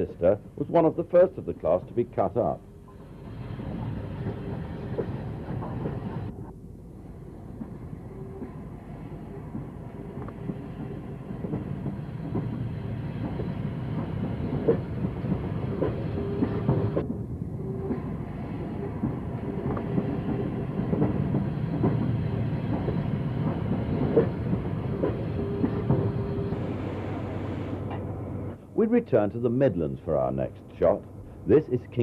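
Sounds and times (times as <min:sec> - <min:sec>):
train wheels clicking on rail joints: 0:02.9 - 0:06.3, 0:09.5 - 0:28.1.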